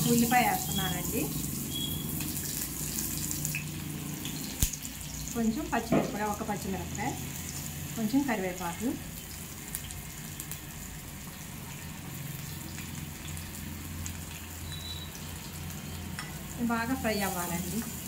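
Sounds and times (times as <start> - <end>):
vegetables sizzling in hot oil: 0.0 - 18.0
small pops and crackles: 4.6 - 4.9.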